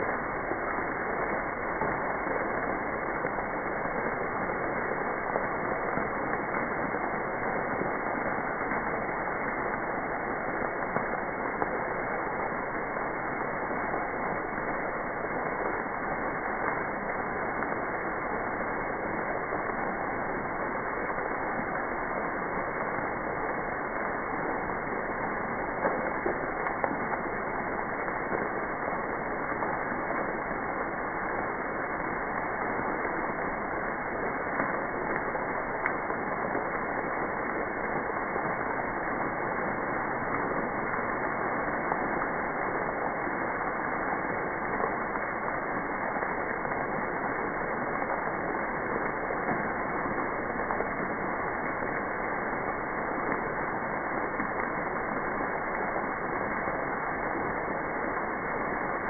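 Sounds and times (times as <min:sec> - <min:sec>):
freezing rain hissing: 0:00.0 - 0:59.0.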